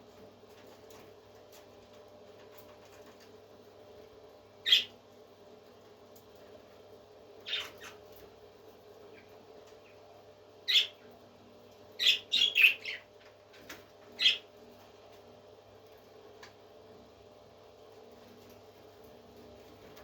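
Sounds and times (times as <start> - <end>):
faint steady hum: 0.0 - 20.0
parrot calling: 4.6 - 4.9, 7.4 - 8.0, 10.6 - 11.0, 12.0 - 13.1, 14.2 - 14.4.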